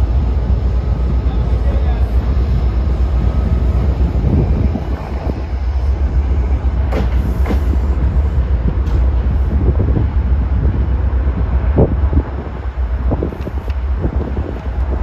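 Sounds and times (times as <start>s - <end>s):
train low rumble: 0.0s - 15.0s
wheels clacking over rail joints: 6.7s - 9.3s.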